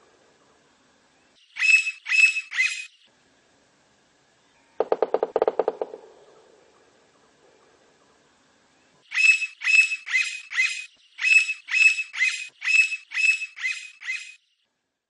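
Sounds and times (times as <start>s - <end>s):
woodpecker calling: 1.5s - 2.9s, 4.8s - 6.9s, 9.1s - 14.4s.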